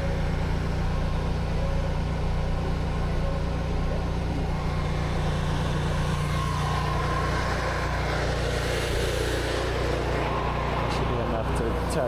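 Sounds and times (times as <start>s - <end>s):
pressure washer engine humming: 0.0s - 12.0s.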